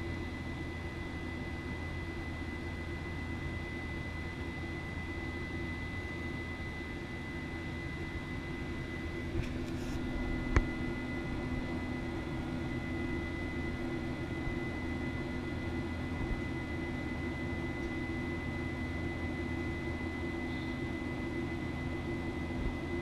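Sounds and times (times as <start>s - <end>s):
jet engine noise: 0.0s - 23.0s.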